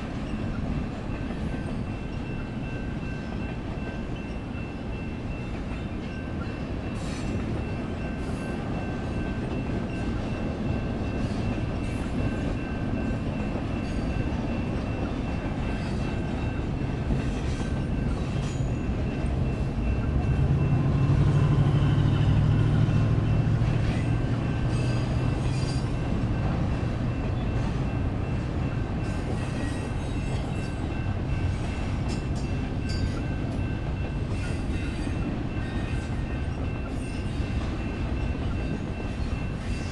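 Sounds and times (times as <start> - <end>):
crossing bells ringing: 0.0 - 39.9
train wheels rumbling: 0.0 - 39.9.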